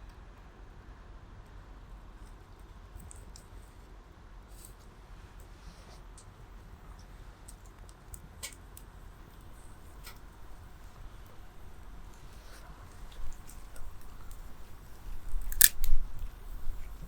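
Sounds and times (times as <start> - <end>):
wood fire crackling and popping: 9.2 - 17.0.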